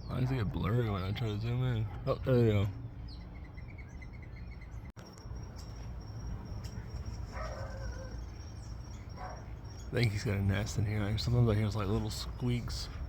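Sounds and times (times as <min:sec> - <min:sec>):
high-pitched insect trill: 0:05.0 - 0:11.1.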